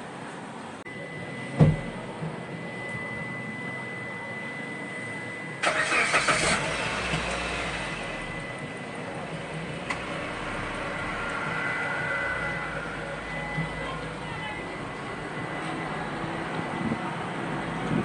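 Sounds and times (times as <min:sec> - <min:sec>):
steady high tone: 0:00.8 - 0:05.7, 0:07.8 - 0:17.8
heavy thump: 0:01.6 - 0:02.0
engine starting and idling: 0:05.6 - 0:08.5.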